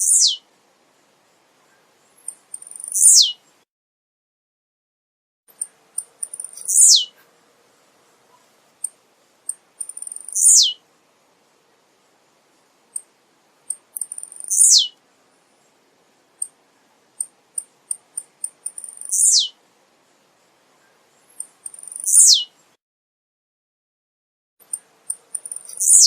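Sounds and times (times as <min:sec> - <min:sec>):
short high bird ticks: 0:02.2 - 0:03.3, 0:05.5 - 0:07.0, 0:08.8 - 0:10.7, 0:13.7 - 0:14.9, 0:17.2 - 0:19.5, 0:21.4 - 0:22.4, 0:24.6 - 0:26.0.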